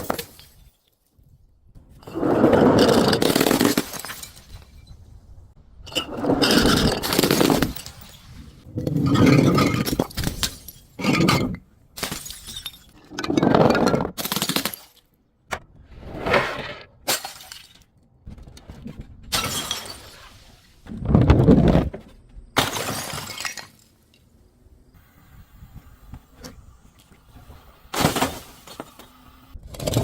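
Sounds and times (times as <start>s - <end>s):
glass bottles breaking: 2.7s - 4.9s, 5.9s - 15.0s, 17.1s - 17.8s, 19.3s - 20.4s, 22.6s - 24.0s, 28.0s - 29.1s.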